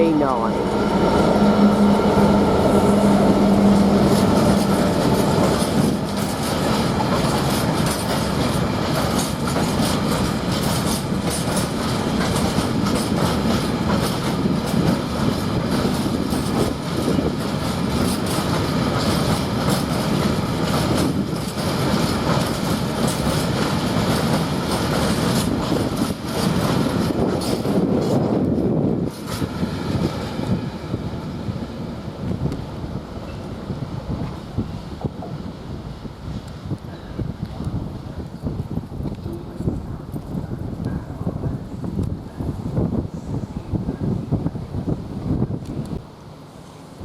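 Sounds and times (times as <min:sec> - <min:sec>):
freight wagons rumbling past: 0:00.0 - 0:32.1
diesel locomotive engine: 0:00.0 - 0:47.0.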